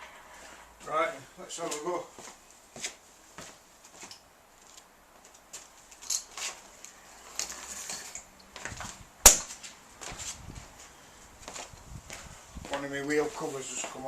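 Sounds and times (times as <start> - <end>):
sharp loud click: 9.3 - 9.5.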